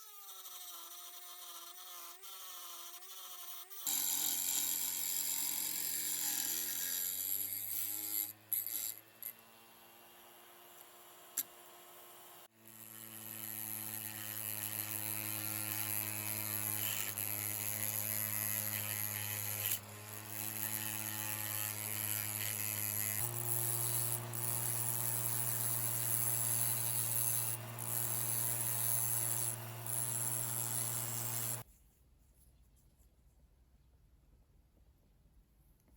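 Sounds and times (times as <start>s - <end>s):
power tool motor whining: 10.7s - 31.6s.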